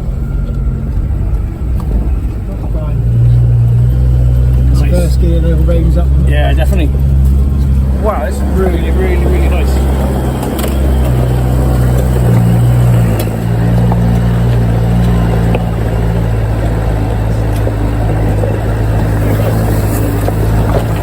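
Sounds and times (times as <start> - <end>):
engine droning at low revs: 0.0 - 21.0.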